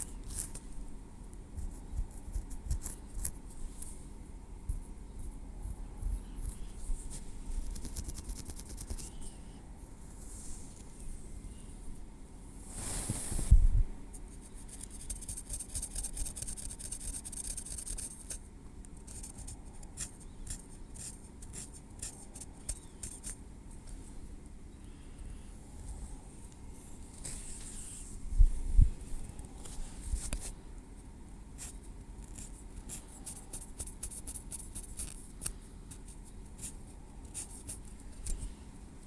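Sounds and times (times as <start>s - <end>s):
brushing rustle: 9.9s - 11.3s, 12.6s - 17.6s, 26.8s - 30.6s.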